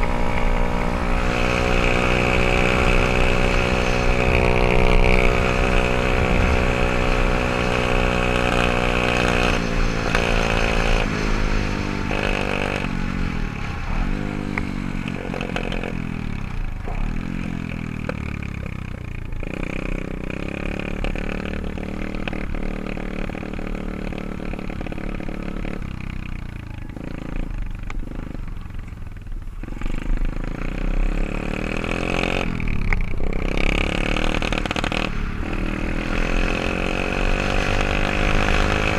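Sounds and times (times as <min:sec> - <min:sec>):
pit bike engine revving: 0:00.0 - 0:28.4, 0:29.6 - 0:38.9.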